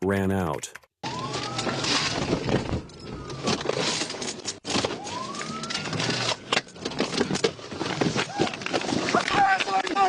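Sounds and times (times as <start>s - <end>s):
police siren wailing: 1.0s - 7.2s.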